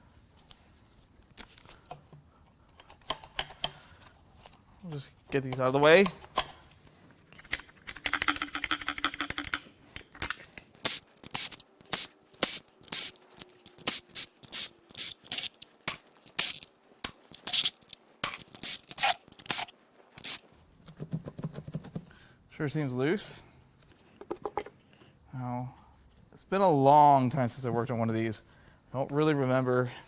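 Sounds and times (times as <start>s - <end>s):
sharp metallic clicks and clinks: 7.2s - 11.7s.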